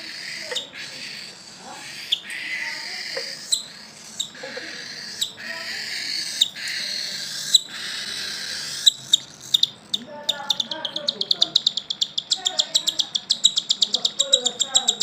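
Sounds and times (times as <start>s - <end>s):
cockatiel hissing call: 0.0s - 9.6s
cockatiel chirps: 0.0s - 15.0s.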